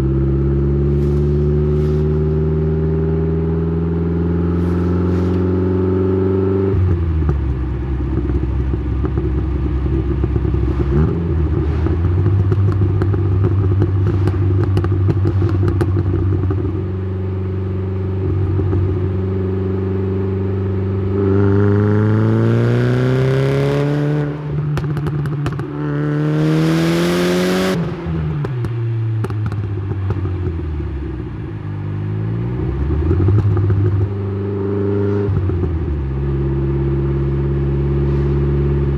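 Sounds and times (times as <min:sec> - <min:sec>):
exhaust crackles: 0:00.7 - 0:02.9, 0:06.8 - 0:17.0
turbocharged car engine revving: 0:20.5 - 0:28.7.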